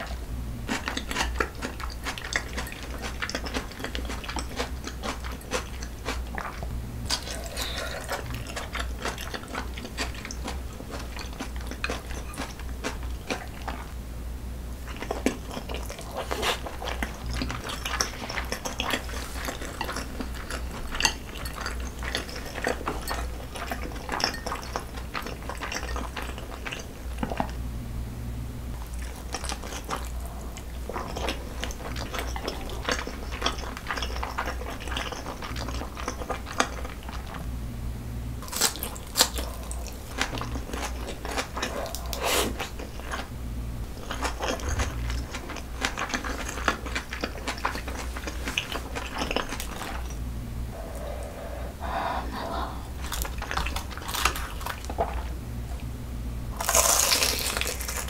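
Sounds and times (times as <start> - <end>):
wet chewing: 0.0 - 14.0, 14.8 - 27.6, 28.8 - 37.5, 38.4 - 55.4, 56.6 - 58.0
crisp crunching bites: 53.0 - 55.2, 56.6 - 58.0.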